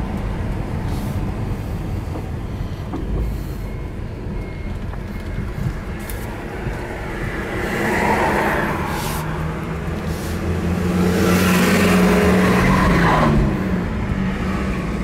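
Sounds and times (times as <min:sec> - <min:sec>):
car engine low rumble: 0:00.0 - 0:15.0
road noise: 0:00.0 - 0:15.0.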